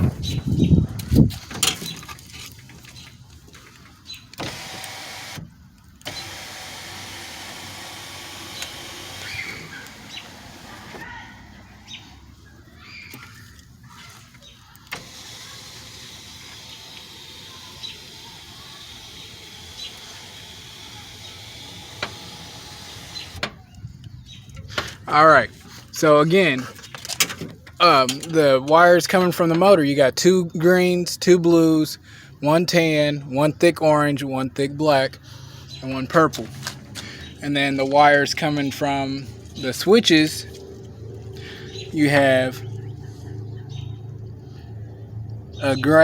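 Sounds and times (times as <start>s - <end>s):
sunroof motor running: 4.4s - 11.1s, 14.8s - 23.4s.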